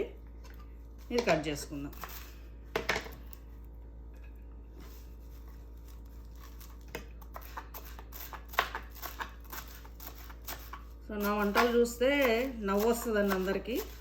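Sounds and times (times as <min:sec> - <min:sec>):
knife tapping cutting leaves: 0:06.9 - 0:14.0.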